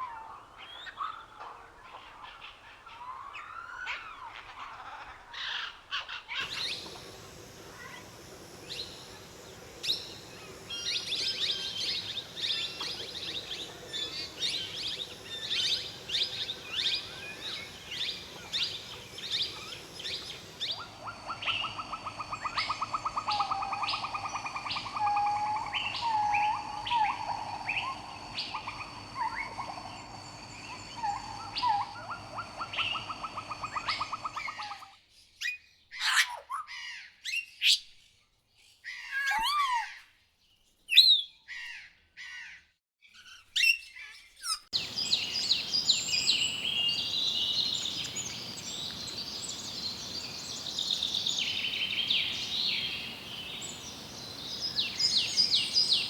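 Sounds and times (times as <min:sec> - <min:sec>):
birds chirping: 0:00.6 - 0:34.8, 0:44.8 - 0:56.0
fast buzzy bird trill: 0:06.4 - 0:34.7.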